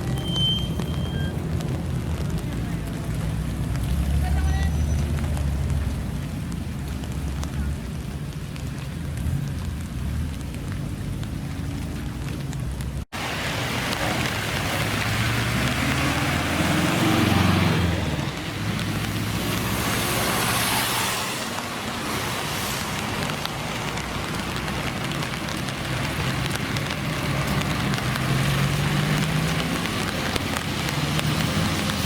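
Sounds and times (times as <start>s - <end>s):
car engine accelerating: 13.2s - 21.5s, 22.2s - 32.0s.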